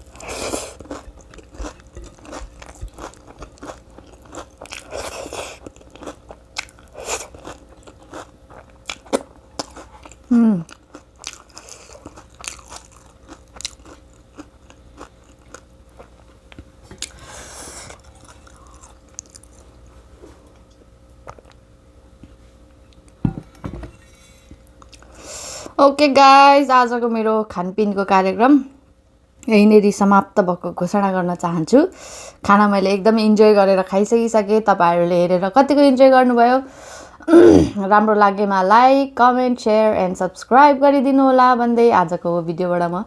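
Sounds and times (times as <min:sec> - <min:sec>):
person chewing and crunching food: 0:00.0 - 0:19.9.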